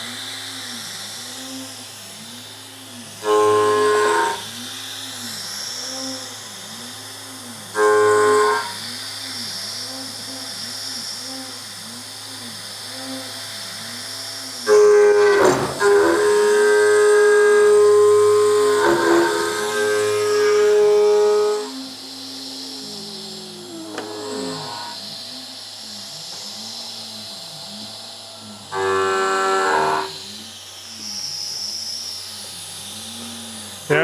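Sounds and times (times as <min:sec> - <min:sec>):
machine axis motors whining: 0:00.1 - 0:34.0
loud steady tone: 0:03.2 - 0:04.4.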